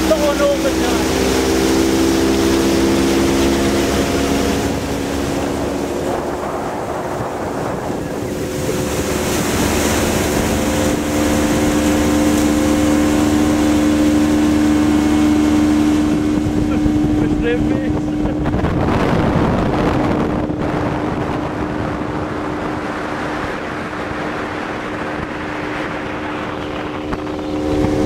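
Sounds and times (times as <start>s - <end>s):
motorboat engine running: 0.0s - 28.0s
water rushing: 0.0s - 28.0s
wind on microphone: 0.0s - 28.0s.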